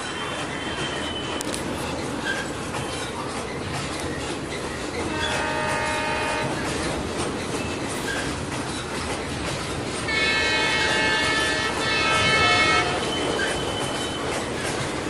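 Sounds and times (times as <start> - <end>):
train rumbling across bridge: 0.0 - 15.0
multi-tone train horn: 5.0 - 7.0, 10.1 - 14.4.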